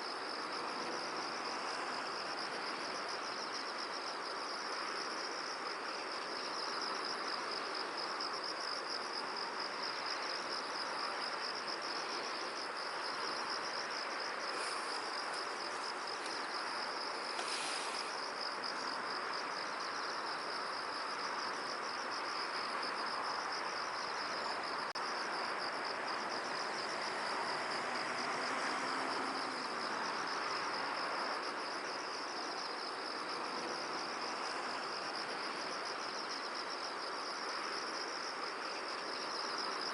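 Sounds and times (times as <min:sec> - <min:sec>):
insects trilling: 0:00.0 - 0:39.9
wind hissing across field: 0:11.3 - 0:20.7
bright rustle: 0:17.2 - 0:18.2.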